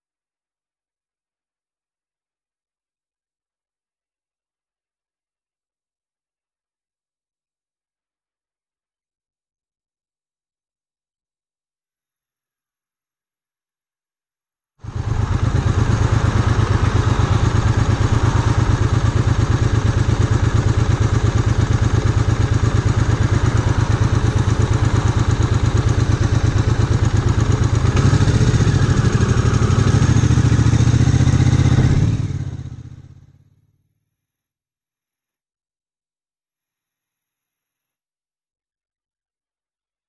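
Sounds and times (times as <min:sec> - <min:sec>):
motorcycle engine running: 0:14.8 - 0:33.4.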